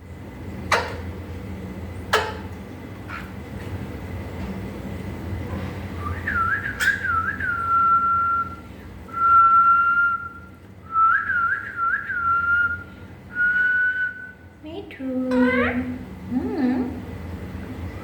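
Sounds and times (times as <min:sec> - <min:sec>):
parrot whistling a tune: 0:06.0 - 0:08.6, 0:09.2 - 0:14.4.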